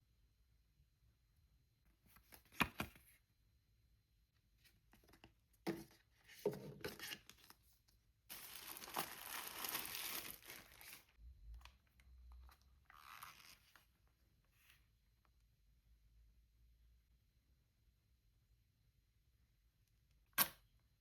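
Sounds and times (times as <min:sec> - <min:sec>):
packaging rustling and clicking: 0:08.3 - 0:11.1
packaging tearing: 0:08.3 - 0:11.1
packaging crinkling: 0:08.3 - 0:11.2, 0:12.8 - 0:13.9.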